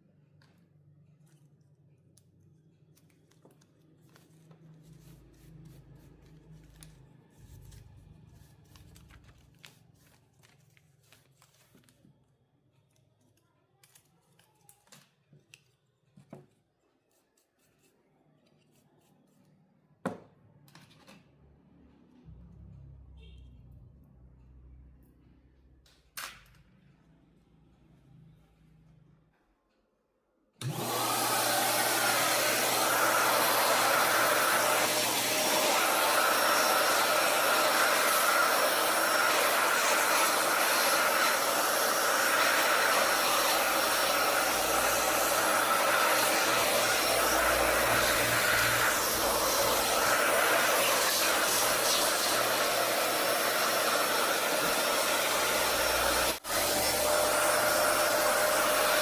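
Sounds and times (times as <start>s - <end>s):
vacuum cleaner running: 30.6s - 59.0s.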